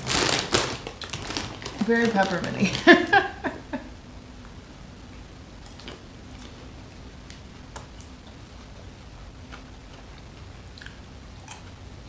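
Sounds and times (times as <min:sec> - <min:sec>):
popcorn being chewed: 0:00.0 - 0:03.1, 0:05.6 - 0:12.0.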